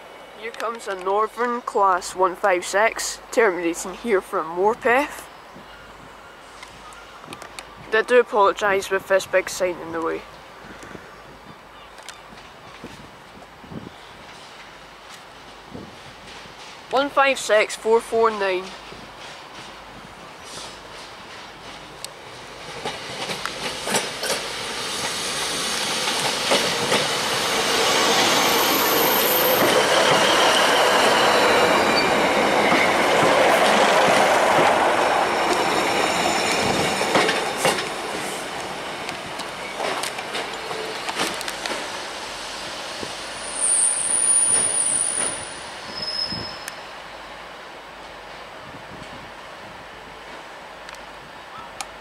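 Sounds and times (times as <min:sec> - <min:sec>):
train passing on rails: 0:00.0 - 0:52.0
wheels clicking over rail joints: 0:21.0 - 0:24.6, 0:25.8 - 0:27.2, 0:36.5 - 0:41.9
high wheel squeal: 0:27.5 - 0:32.9, 0:43.4 - 0:46.9.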